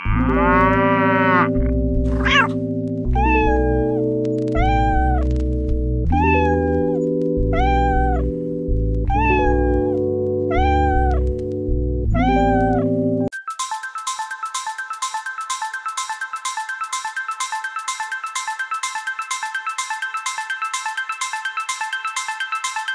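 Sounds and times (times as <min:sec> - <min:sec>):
background music with chords: 0:00.0 - 0:22.9
cat meowing: 0:02.1 - 0:04.0, 0:04.6 - 0:05.2, 0:06.1 - 0:08.3, 0:09.1 - 0:11.2, 0:12.2 - 0:12.8.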